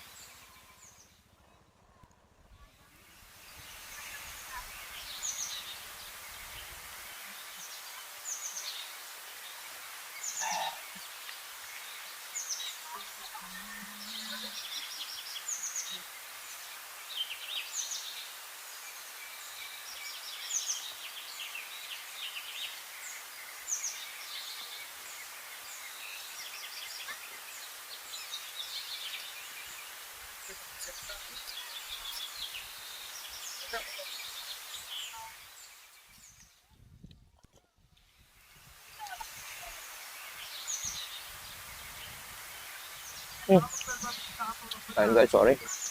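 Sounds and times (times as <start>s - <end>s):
birds chirping and calling: 42.8s - 45.9s.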